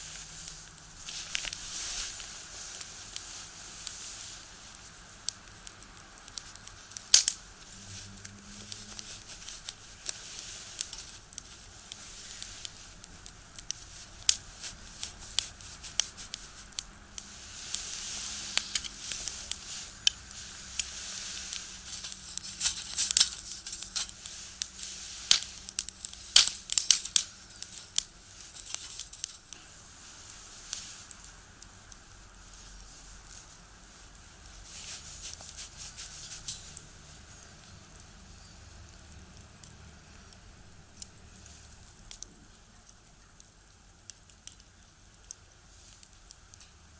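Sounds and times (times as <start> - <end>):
hissing flame: 0.0 - 46.9
wood fire crackling: 0.0 - 46.9
sharp pops of burning firewood: 2.2 - 7.6, 9.5 - 29.6.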